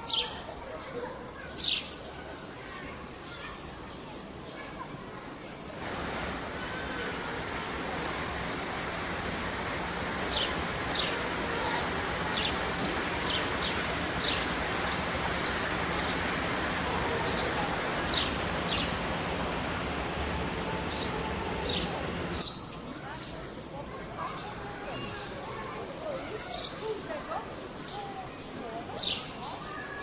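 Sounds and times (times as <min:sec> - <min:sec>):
bird chirping: 0:05.8 - 0:22.4
outdoor rushing noise: 0:05.8 - 0:22.4.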